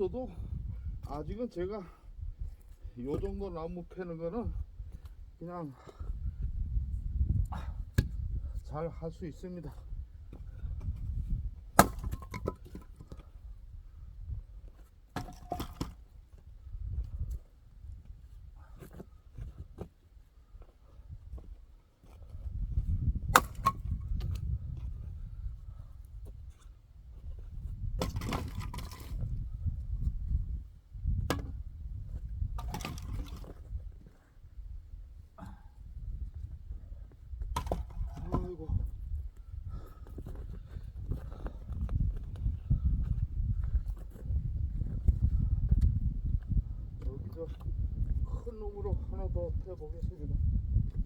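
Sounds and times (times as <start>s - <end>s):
axe splitting firewood: 10.8s - 13.3s, 15.1s - 16.0s, 23.2s - 24.8s, 27.9s - 29.4s, 31.2s - 31.6s, 32.6s - 33.7s, 37.4s - 38.6s
wood pieces clattering: 32.6s - 33.6s.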